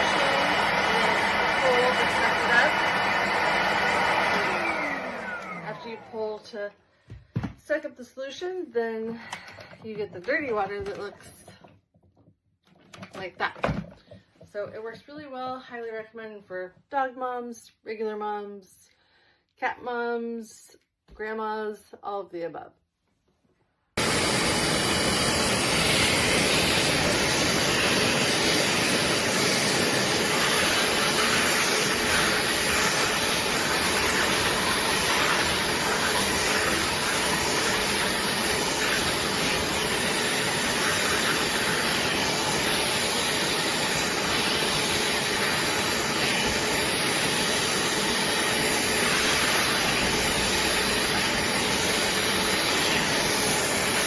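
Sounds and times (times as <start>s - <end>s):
carpet cleaner motor rushing hiss: 0.0s - 6.4s, 24.0s - 54.0s.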